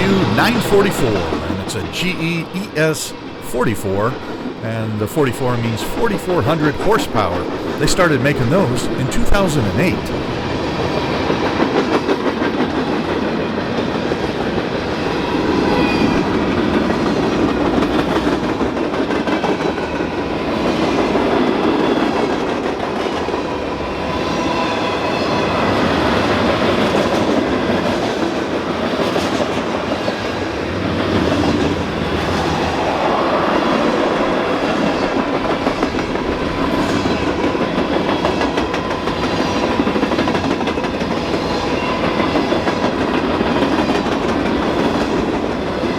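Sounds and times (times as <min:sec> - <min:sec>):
steel train wheels on rails: 0:25.6 - 0:45.9.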